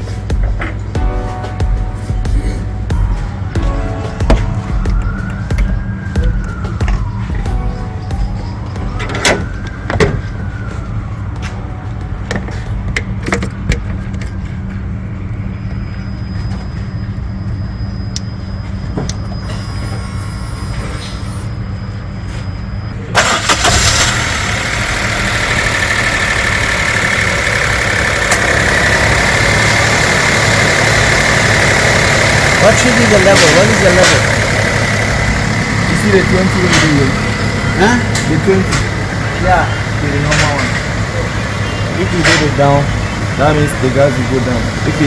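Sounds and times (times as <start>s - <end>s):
car engine idling: 23.2s - 45.0s.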